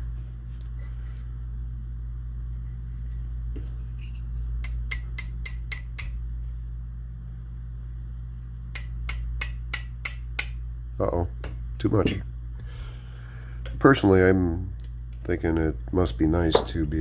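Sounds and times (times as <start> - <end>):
steady low hum: 0.0 - 17.0
hammer tapping metal pin: 4.6 - 6.2, 8.7 - 10.6, 11.4 - 12.3.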